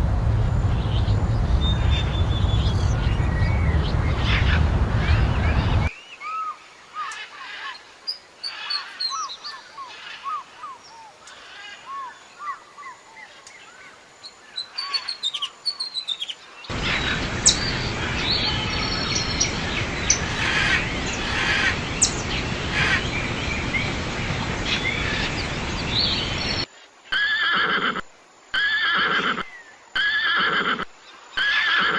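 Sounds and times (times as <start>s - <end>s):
small birds chirping: 0.0s - 26.7s
horse neighing: 28.6s - 31.9s.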